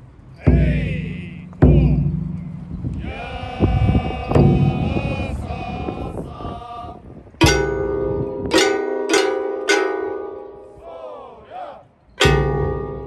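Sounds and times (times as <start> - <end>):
chanting voices: 0.4 - 7.7, 10.4 - 13.0
bronze gong strokes ringing: 0.5 - 3.0, 7.4 - 10.8, 12.2 - 13.0.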